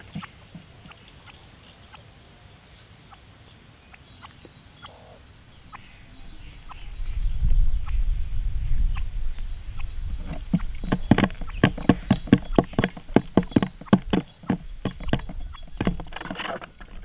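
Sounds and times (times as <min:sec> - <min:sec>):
sharp knocks: 0:10.2 - 0:17.0.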